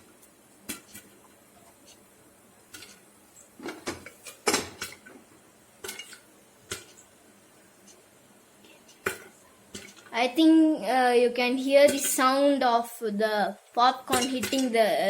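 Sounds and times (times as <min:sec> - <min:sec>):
popcorn popping against lid: 0:00.6 - 0:10.2.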